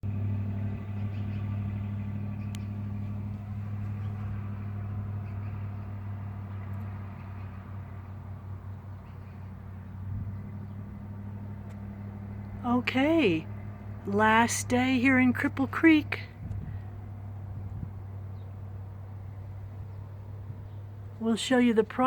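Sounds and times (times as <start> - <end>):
engine idling drone: 0.0 - 22.0.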